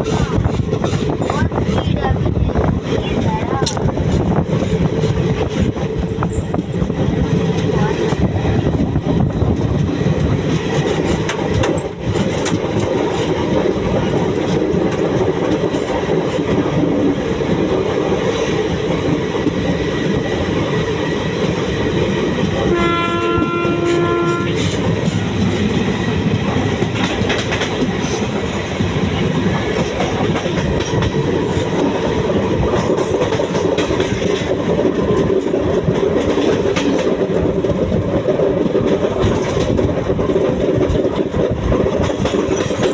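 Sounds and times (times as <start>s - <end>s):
train wheels rumbling on rails: 0.0s - 42.9s
train horn blast: 22.6s - 24.8s.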